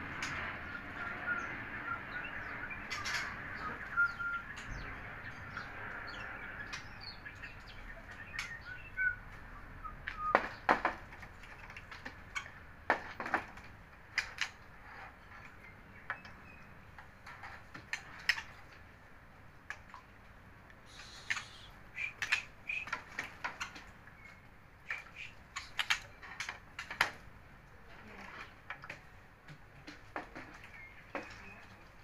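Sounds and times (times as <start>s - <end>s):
high bird chirps: 0.7s - 4.9s, 20.9s - 23.0s, 24.9s - 26.0s.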